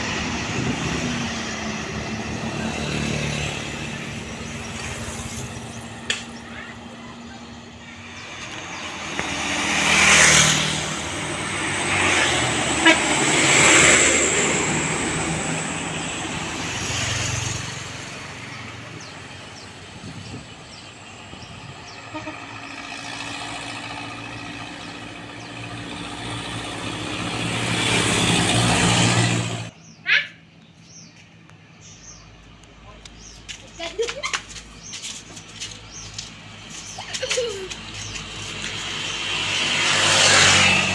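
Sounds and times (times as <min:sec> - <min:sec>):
heavy traffic passing: 0:00.0 - 0:40.9
vehicle horn tooting: 0:12.8 - 0:13.4, 0:22.0 - 0:22.6.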